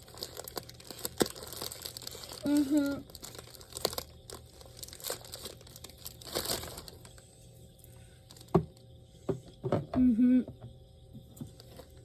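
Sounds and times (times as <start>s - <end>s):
packaging crinkling and rustling: 0.0s - 7.2s.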